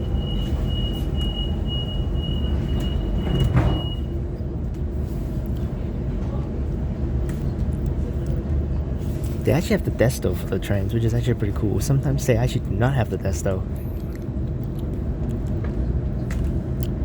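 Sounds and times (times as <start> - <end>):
train low rumble: 0.0 - 17.0
train doors thudding shut: 2.5 - 4.1.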